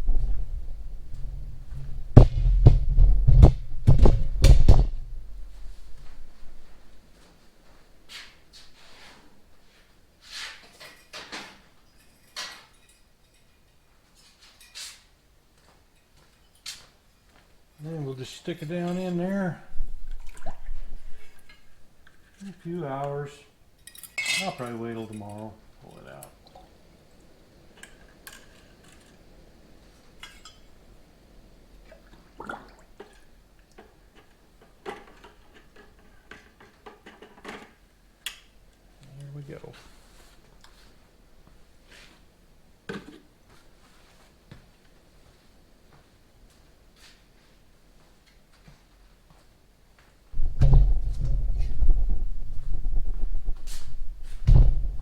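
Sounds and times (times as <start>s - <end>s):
parts and containers scraping and knocking: 0.0s - 7.0s, 18.4s - 22.8s, 23.8s - 26.2s, 27.7s - 29.4s, 33.0s - 37.9s, 42.9s - 43.3s, 50.4s - 55.0s
liquid sloshing: 19.6s - 22.0s, 31.8s - 33.4s.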